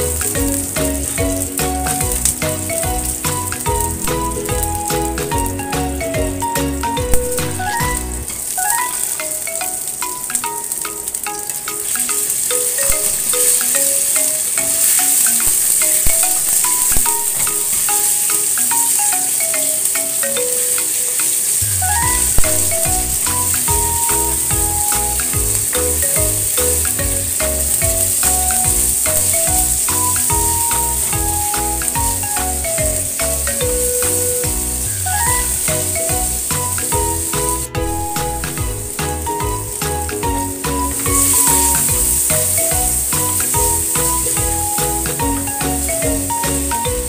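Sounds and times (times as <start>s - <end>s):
bass line: 0.0s - 8.3s, 21.6s - 47.0s
background music with melody: 0.0s - 47.0s.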